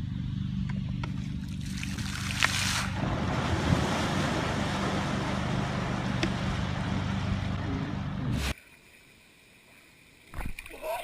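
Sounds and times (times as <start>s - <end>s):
wind and water rushing: 1.6s - 8.5s.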